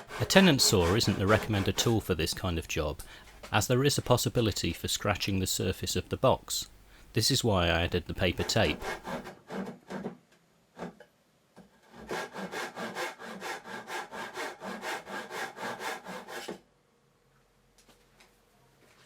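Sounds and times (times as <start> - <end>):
hand saw cutting wood: 0.0 - 2.6, 8.0 - 10.2, 11.8 - 16.6.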